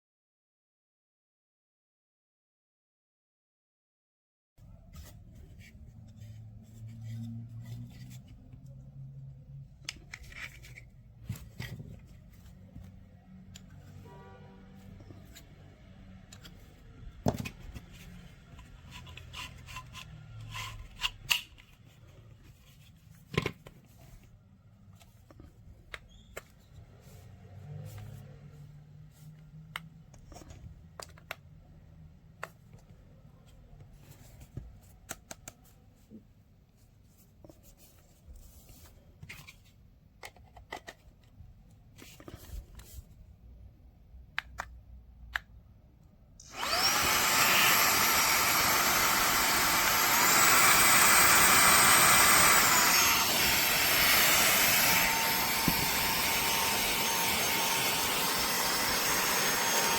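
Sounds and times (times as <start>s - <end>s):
handheld blower motor whine: 46.4s - 59.9s.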